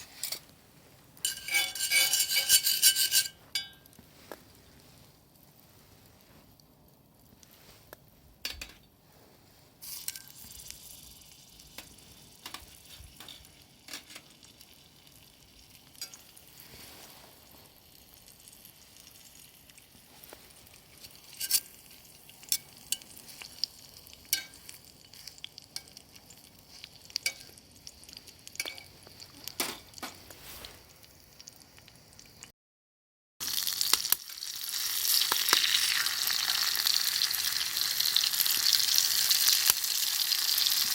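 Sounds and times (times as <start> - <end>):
food sizzling in a pan: 0.0 - 8.0, 8.6 - 32.5, 33.4 - 40.9.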